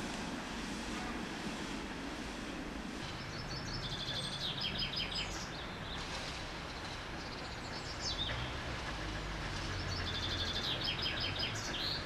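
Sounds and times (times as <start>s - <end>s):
songbird chirping: 3.0s - 12.0s.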